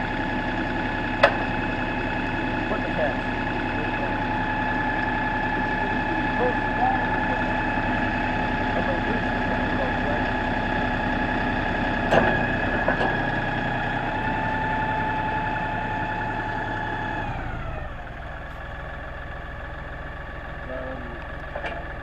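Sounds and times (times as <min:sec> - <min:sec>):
tractor diesel engine idling: 0:00.0 - 0:22.0
sharp knocks: 0:01.2 - 0:01.4.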